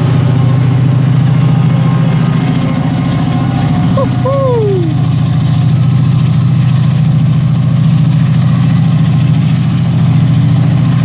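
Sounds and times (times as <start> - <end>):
brief falling tone: 4.0 - 5.0.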